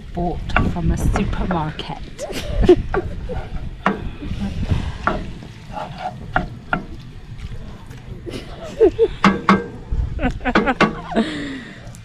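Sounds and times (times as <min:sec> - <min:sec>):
utensil scraping and knocking pan: 0:02.9 - 0:07.0, 0:09.2 - 0:09.8, 0:10.5 - 0:11.2.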